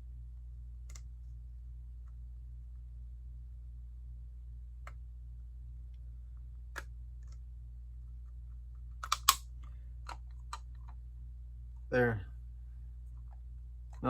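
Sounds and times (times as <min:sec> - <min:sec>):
steady low hum: 0:00.0 - 0:14.0
plastic pieces clicking together: 0:09.0 - 0:09.4.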